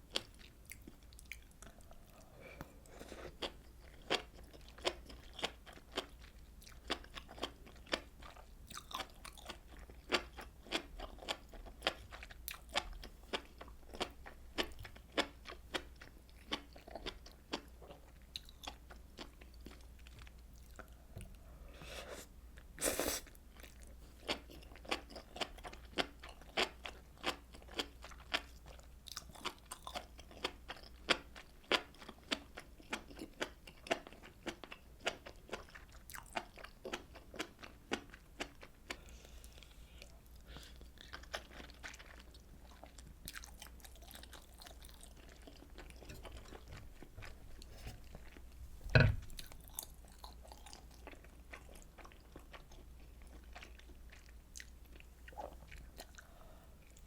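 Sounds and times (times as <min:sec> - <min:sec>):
person chewing food: 0:00.1 - 0:21.5, 0:22.5 - 0:57.0.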